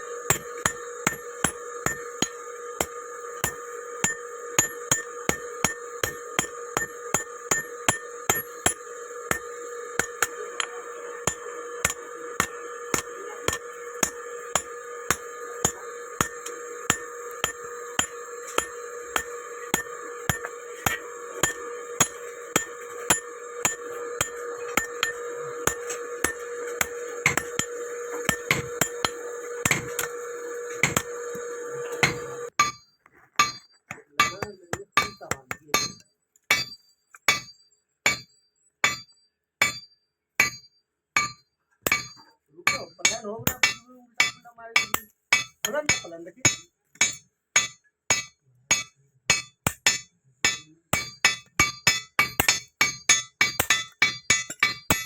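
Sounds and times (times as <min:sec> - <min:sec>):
steady hum: 0:00.0 - 0:32.5
hammer striking iron on anvil: 0:00.2 - 0:31.4, 0:32.0 - 0:32.8, 0:33.4 - 0:55.0.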